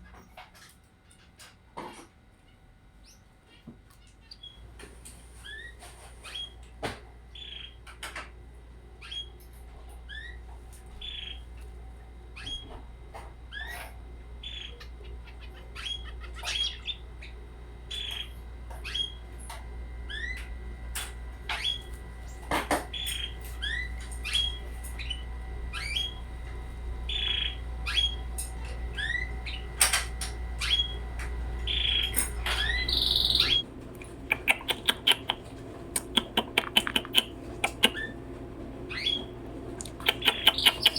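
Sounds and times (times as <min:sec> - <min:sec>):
low steady hum: 0:00.0 - 0:40.9
young canaries chirping: 0:13.5 - 0:19.2, 0:21.5 - 0:38.2, 0:38.9 - 0:40.9
sharp clicks: 0:32.1 - 0:38.0, 0:39.8 - 0:40.9.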